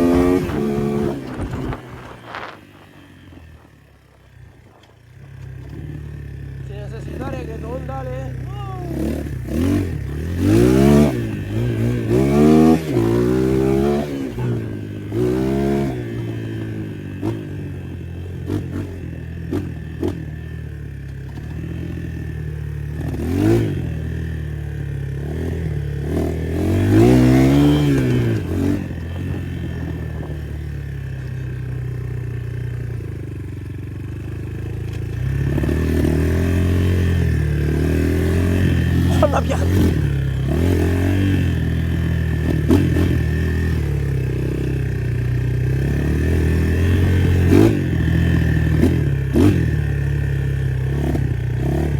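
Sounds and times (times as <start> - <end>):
motocross engine revving: 0.0 - 20.6, 21.2 - 31.3, 34.4 - 51.9
motocross engine idling: 1.3 - 10.4, 38.6 - 40.7.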